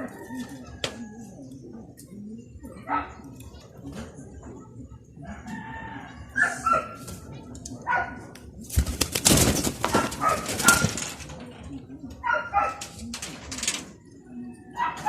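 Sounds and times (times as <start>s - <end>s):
loud rustling: 8.7s - 11.4s.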